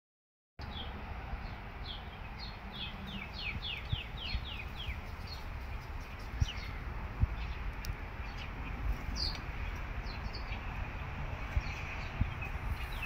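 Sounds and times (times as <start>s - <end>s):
songbird singing: 0.6s - 13.0s
steady low rumble: 1.4s - 13.0s.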